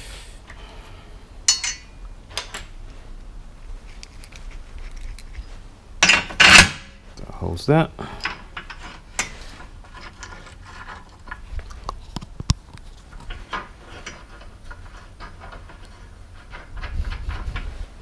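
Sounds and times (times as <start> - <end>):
metal clinks and knocks: 1.5 - 3.0, 3.8 - 6.7.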